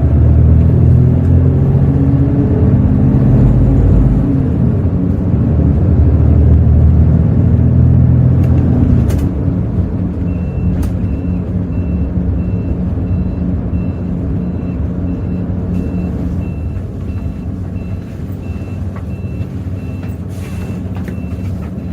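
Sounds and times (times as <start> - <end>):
diesel engine humming: 0.0 - 21.9
electronic warning beep: 10.3 - 21.9.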